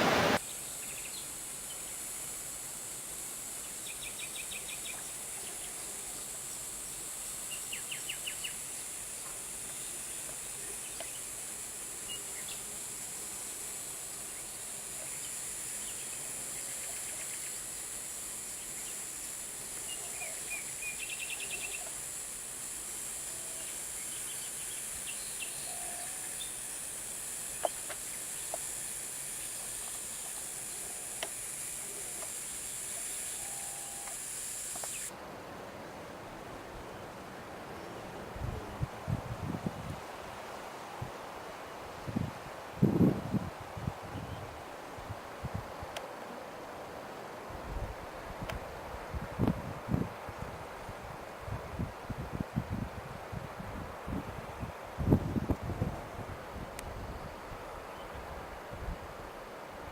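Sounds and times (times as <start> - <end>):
loud rushing noise: 0.0 - 0.4
steady high-pitched hiss: 0.0 - 59.9.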